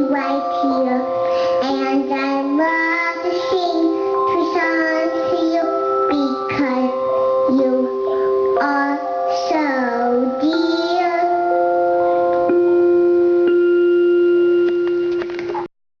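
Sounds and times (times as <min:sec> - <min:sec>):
child singing: 0:00.0 - 0:11.7.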